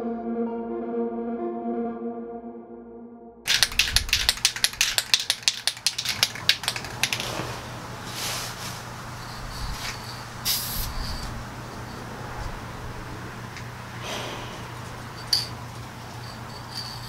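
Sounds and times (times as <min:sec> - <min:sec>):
aerosol can ball rattling: 0:03.5 - 0:07.7
spray can hissing: 0:03.5 - 0:11.2.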